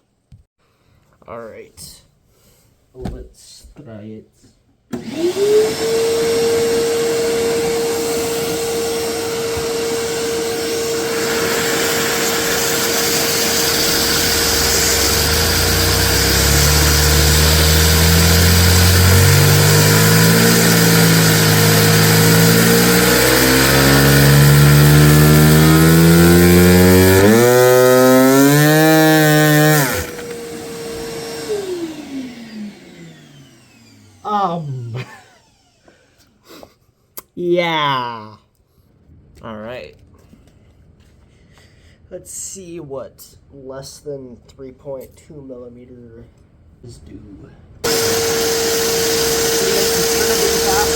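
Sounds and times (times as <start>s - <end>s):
vacuum cleaner motor whining: 4.9s - 36.3s, 47.8s - 50.9s
toy engine humming: 12.9s - 35.9s, 47.8s - 50.9s.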